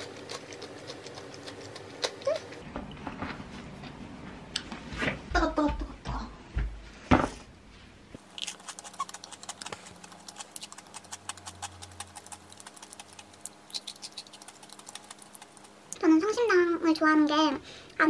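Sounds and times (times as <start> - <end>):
crunchy chewing: 0.0 - 2.6, 8.2 - 16.0.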